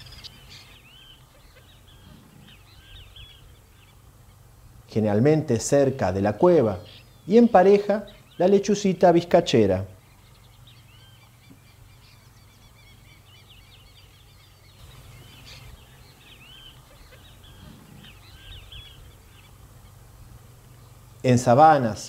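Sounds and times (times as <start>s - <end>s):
faint low hum: 0.0s - 22.0s
small birds chirping: 0.0s - 22.0s.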